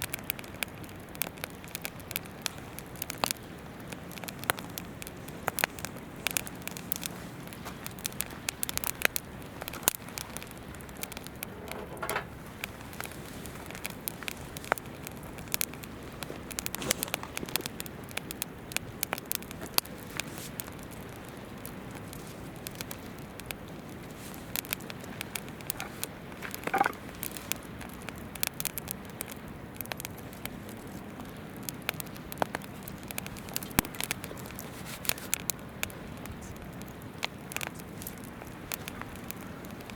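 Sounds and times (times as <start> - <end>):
campfire crackling and popping: 0.0 - 39.9
river flowing: 1.7 - 18.2, 19.7 - 28.4.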